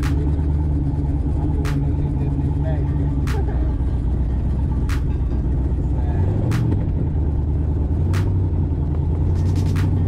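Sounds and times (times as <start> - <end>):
car engine idling: 0.0 - 10.0
sharp engine tick: 1.6 - 2.1, 8.0 - 10.0.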